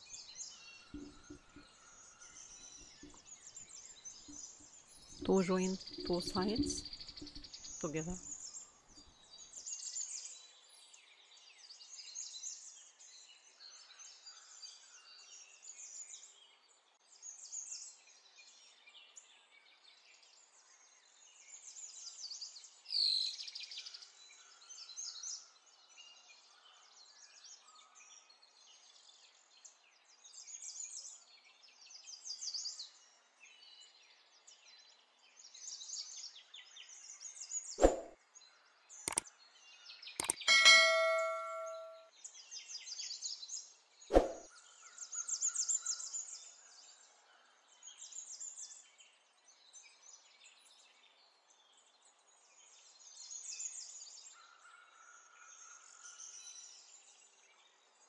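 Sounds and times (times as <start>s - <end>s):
birds chirping and singing: 3.9s - 8.6s
sharp click: 37.8s - 38.1s, 40.2s - 42.0s.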